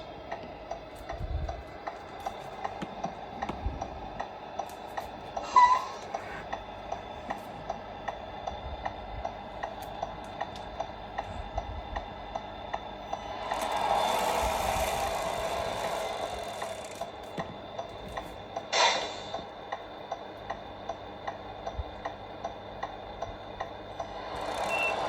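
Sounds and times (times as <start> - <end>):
faint hum: 0.0 - 25.0
mechanical ticking: 6.5 - 18.7, 19.6 - 25.0.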